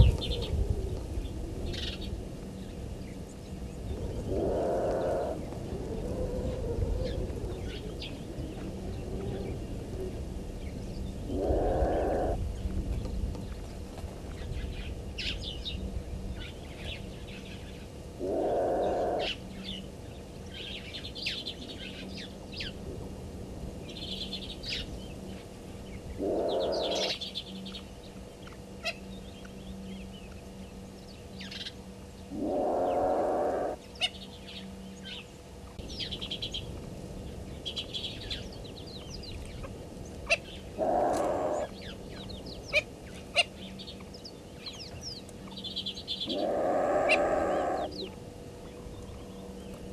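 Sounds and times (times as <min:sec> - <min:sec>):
small birds chirping: 0:00.0 - 0:22.8, 0:23.9 - 0:49.9
loud animal call: 0:04.3 - 0:05.4, 0:11.2 - 0:12.4, 0:18.2 - 0:19.4, 0:26.2 - 0:27.2, 0:32.3 - 0:34.2, 0:40.8 - 0:41.9, 0:46.2 - 0:48.2.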